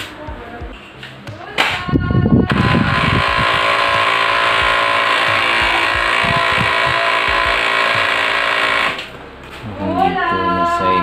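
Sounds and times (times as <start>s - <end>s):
printer motor whine: 2.5s - 9.1s
grinding rattle: 2.6s - 9.0s.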